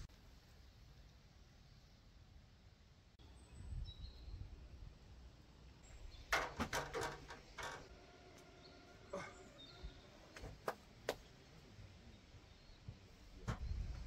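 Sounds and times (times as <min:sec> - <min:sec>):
camping gear knocking: 0:06.3 - 0:07.9.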